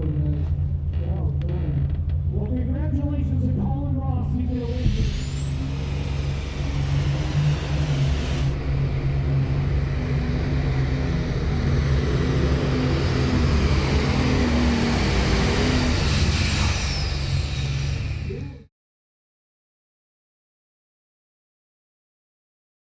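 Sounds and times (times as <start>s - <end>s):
turbocharger whistle: 4.5s - 9.8s, 11.6s - 18.6s
tractor engine running hard: 4.7s - 18.4s.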